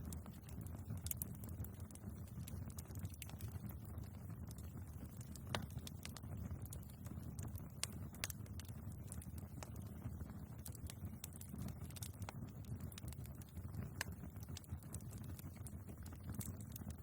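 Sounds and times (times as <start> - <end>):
logs crackling and popping: 0.0 - 17.0
low rumble of flames: 0.0 - 17.0.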